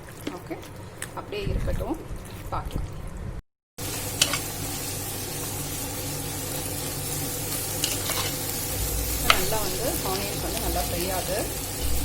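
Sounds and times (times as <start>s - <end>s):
onions sizzling in oil: 3.8s - 12.0s.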